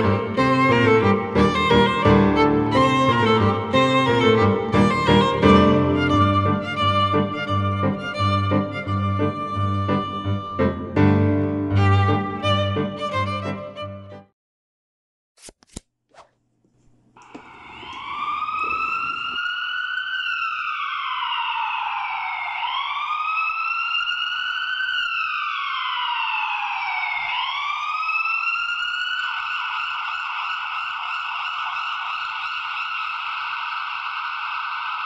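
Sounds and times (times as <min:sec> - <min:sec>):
toy siren wailing: 0:17.5 - 0:35.0.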